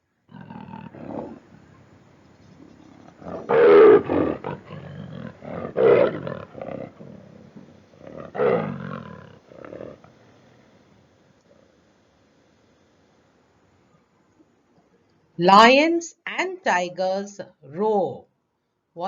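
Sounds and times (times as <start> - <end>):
big cat roaring: 0.3 - 10.6.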